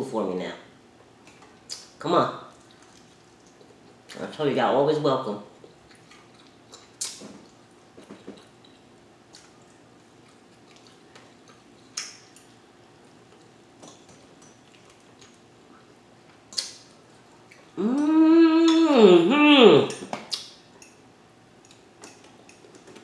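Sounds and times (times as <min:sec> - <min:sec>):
chewing: 0:02.5 - 0:04.2, 0:05.6 - 0:18.9
person humming mm-hmm: 0:17.8 - 0:20.0.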